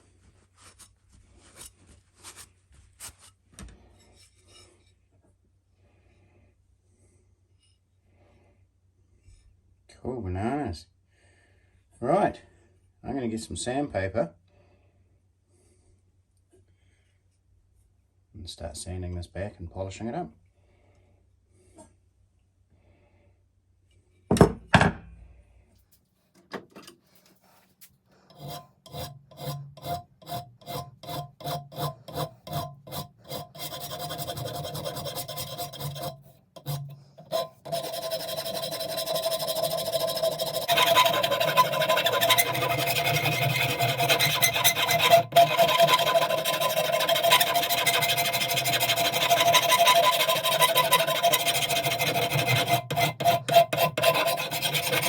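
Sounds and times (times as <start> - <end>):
thump: 24.3 - 25.1
sandpaper rubbing on metal: 31.0 - 55.0.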